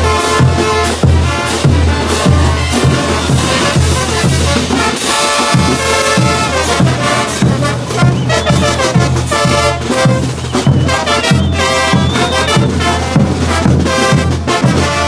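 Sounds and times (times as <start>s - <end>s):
steady bass drum beat: 0.0s - 15.0s
trumpets and trombones playing: 0.0s - 15.0s.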